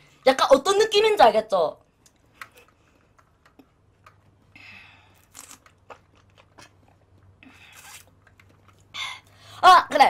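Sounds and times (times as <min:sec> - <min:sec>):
faint chewing of bread: 0:02.0 - 0:09.4.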